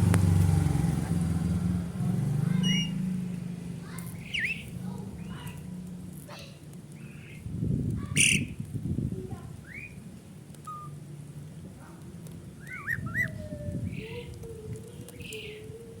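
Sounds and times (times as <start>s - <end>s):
starling calling: 2.4s - 5.7s, 6.3s - 8.6s, 9.6s - 10.0s, 10.6s - 11.0s, 12.5s - 16.0s.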